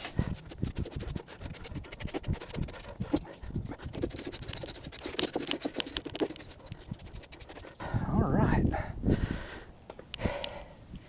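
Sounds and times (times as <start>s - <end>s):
scraping foam off panel: 0.0s - 7.8s.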